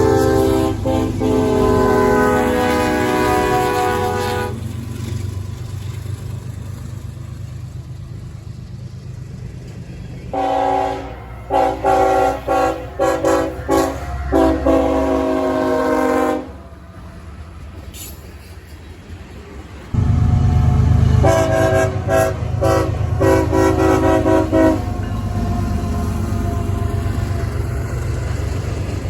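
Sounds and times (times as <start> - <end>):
locomotive air horn blasts: 0.0 - 4.6, 10.3 - 16.8, 20.0 - 27.5
locomotive rumble: 0.0 - 29.0.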